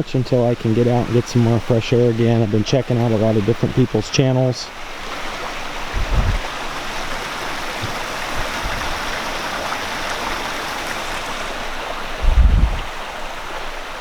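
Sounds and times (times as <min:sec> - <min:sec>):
stream water rushing: 0:00.0 - 0:14.0
low thumps: 0:05.9 - 0:06.6, 0:12.2 - 0:13.0.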